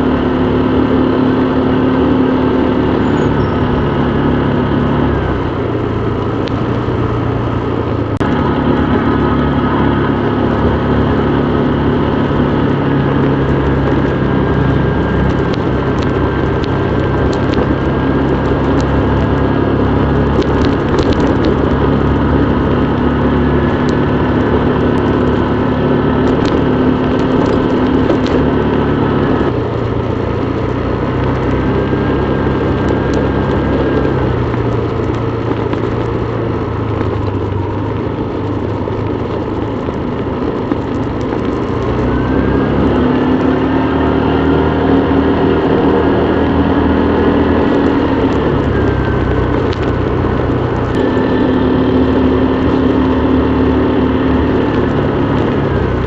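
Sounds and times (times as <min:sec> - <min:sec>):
motorbike engine running: 0:00.0 - 0:56.0.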